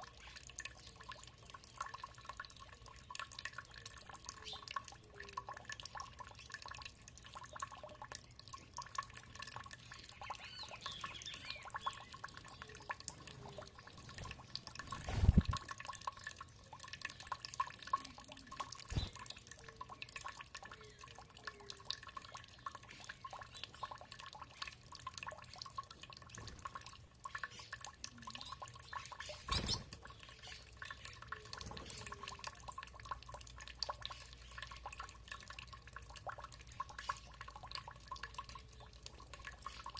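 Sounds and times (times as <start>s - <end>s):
water dripping and trickling: 0.0s - 39.9s
bird calls: 27.4s - 32.3s.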